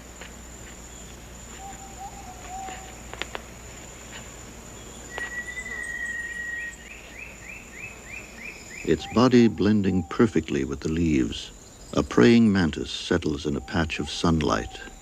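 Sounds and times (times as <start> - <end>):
high insect drone: 0.0 - 15.0
soft low wavering call: 1.6 - 3.0, 5.0 - 7.0
long whistled note: 5.1 - 6.8.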